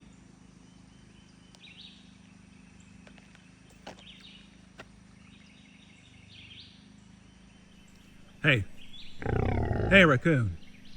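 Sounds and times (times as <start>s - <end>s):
low steady hum: 0.0s - 10.9s
buzzy high-pitched animal calls: 8.4s - 10.9s.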